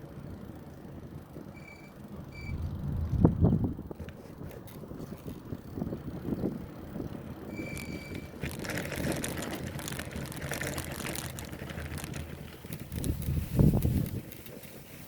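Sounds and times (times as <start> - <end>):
bicycle rattling over road: 0.0 - 15.0
wind rumbling on microphone: 0.0 - 15.0
high squeal: 1.6 - 2.6, 7.5 - 8.3.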